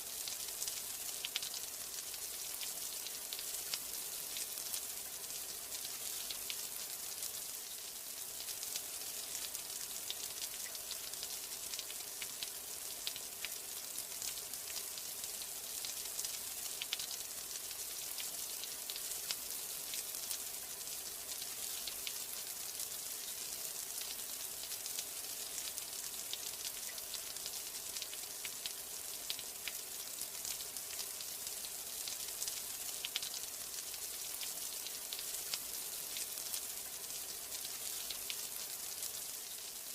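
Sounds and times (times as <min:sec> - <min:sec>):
steady rain hiss: 0:00.0 - 0:39.9
raindrop ticks: 0:00.6 - 0:01.6, 0:15.8 - 0:17.1, 0:32.4 - 0:33.4.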